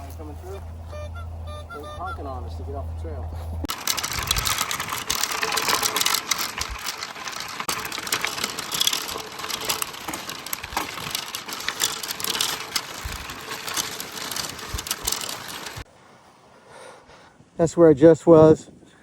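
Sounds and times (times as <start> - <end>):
bike rattling over dirt trail: 2.0 - 15.9.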